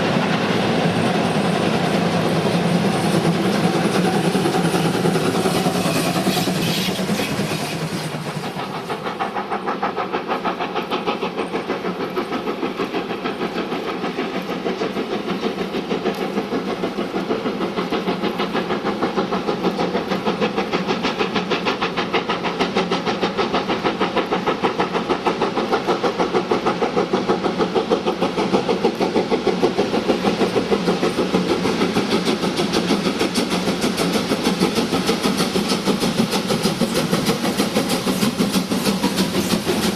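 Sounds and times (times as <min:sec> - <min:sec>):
steam locomotive exhaust beating: 0:00.0 - 0:39.9.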